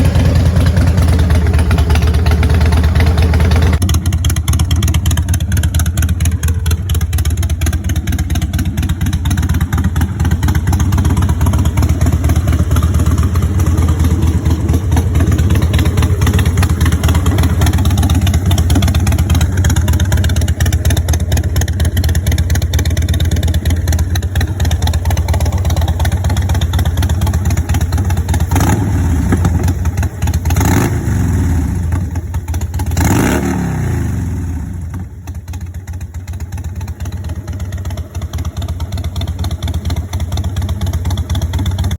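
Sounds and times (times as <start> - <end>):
motorcycle engine idling: 0.0 - 41.9.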